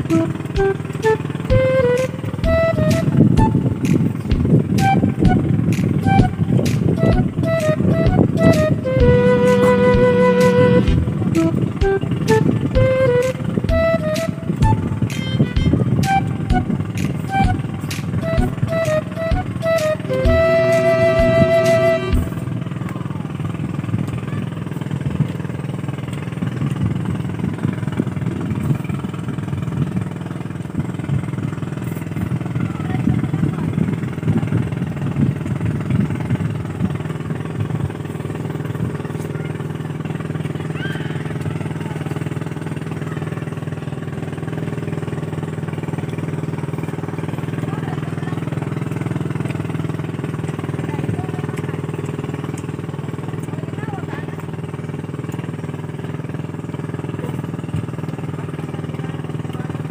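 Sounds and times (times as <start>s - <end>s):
engine droning: 0.0s - 59.9s.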